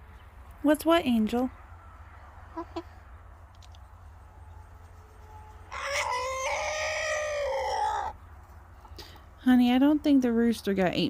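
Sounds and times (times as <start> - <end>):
rooster crowing: 5.4 - 8.2.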